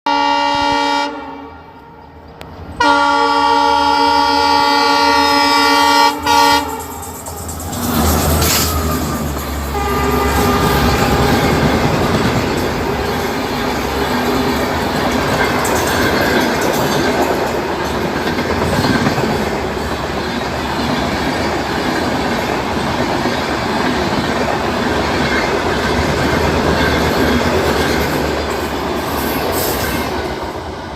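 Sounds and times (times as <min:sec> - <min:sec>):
locomotive horn blasts: 0:00.0 - 0:02.1, 0:02.8 - 0:06.9, 0:09.7 - 0:12.2
train wheels clattering over rails: 0:06.1 - 0:30.9.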